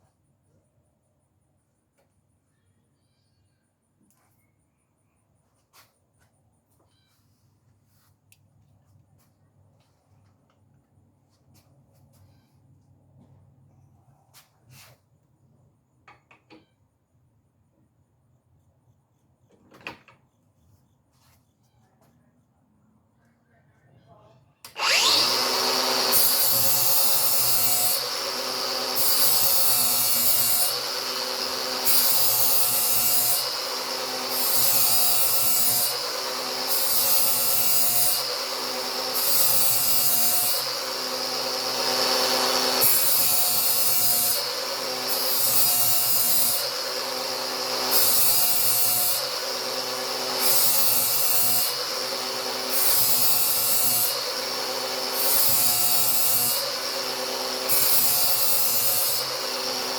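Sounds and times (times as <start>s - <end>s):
angle grinder motor running: 24.7s - 59.9s
grinding disc hissing on steel: 24.8s - 59.9s.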